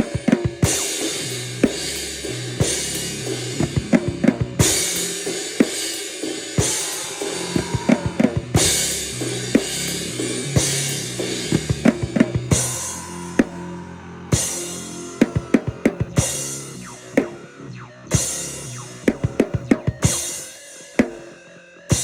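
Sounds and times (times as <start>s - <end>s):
drum hits: 6.5s - 9.7s.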